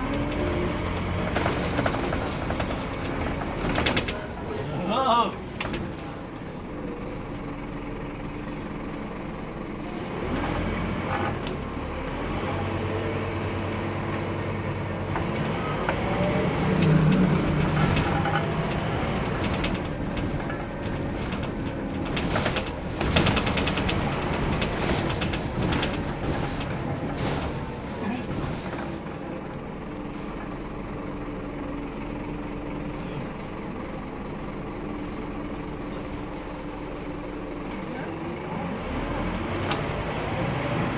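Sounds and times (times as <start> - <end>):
clattering rattles: 0.0 - 4.6, 15.1 - 29.4
bus diesel engine running: 0.0 - 40.9.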